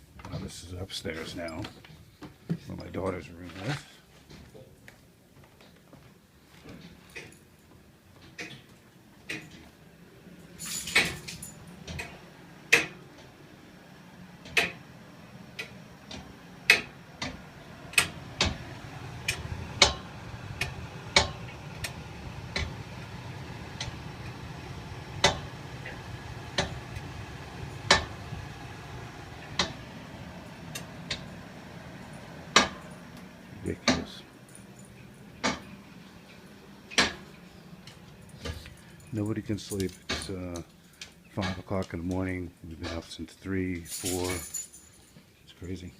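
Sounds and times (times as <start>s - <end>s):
radiator pipes knocking and ticking: 10.9s - 13.3s, 14.4s - 14.9s, 15.5s - 40.7s.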